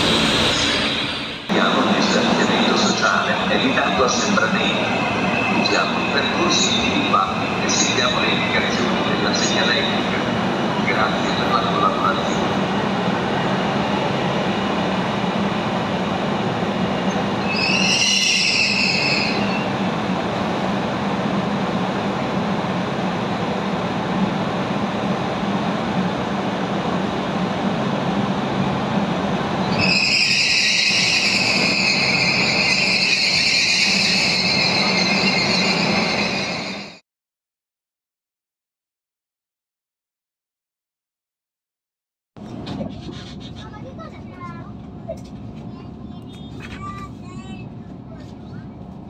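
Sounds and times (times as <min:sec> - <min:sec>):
high-pitched wheel squeal: 0:17.4 - 0:19.7, 0:29.7 - 0:37.0.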